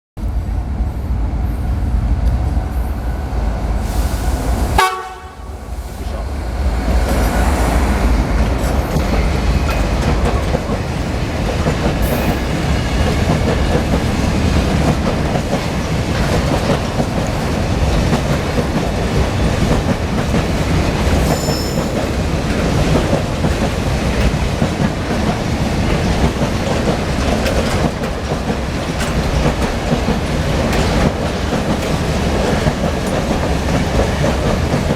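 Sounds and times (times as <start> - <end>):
train horn blast: 4.8 - 5.6
freight train wagons clacking: 5.9 - 34.9.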